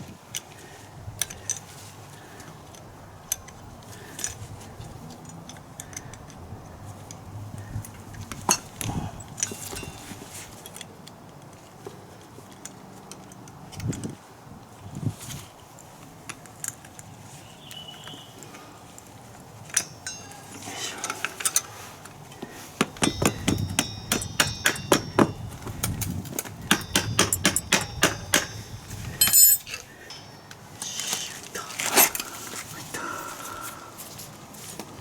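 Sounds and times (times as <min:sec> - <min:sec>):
metallic tool clinks: 0:19.7 - 0:20.7, 0:23.0 - 0:31.0.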